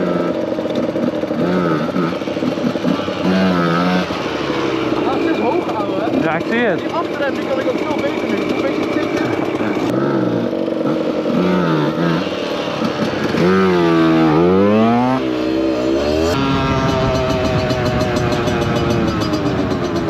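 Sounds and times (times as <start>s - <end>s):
two-stroke motorcycle engine revving: 0.0s - 20.0s.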